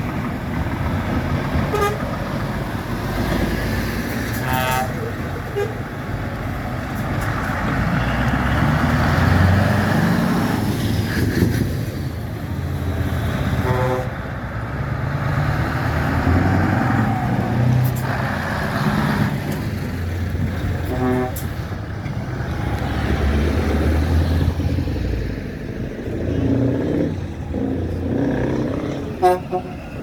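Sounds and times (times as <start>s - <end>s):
diesel engines driving past: 0.0s - 30.0s
horn toot: 1.7s - 2.0s, 4.3s - 5.8s, 13.6s - 14.2s, 28.9s - 30.0s.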